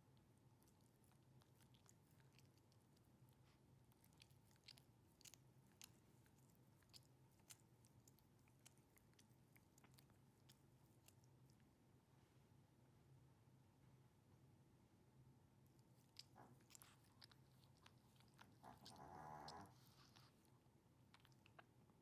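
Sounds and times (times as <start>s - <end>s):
dog licking and nibbling: 0.5s - 11.7s, 15.7s - 20.4s, 21.1s - 21.7s.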